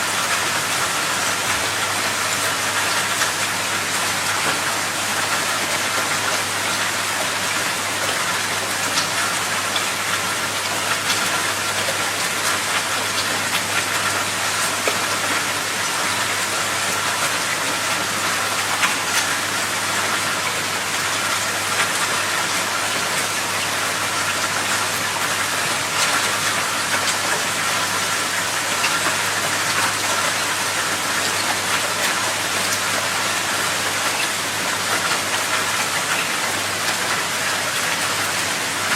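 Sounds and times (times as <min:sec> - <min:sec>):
water rushing and pattering: 0:00.0 - 0:38.9.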